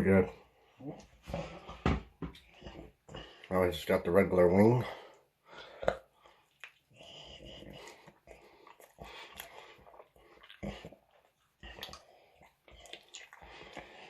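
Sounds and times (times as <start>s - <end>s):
person chewing food: 0.8s - 3.5s, 5.1s - 14.0s
small mouth clicks: 5.8s - 6.9s, 11.6s - 13.8s.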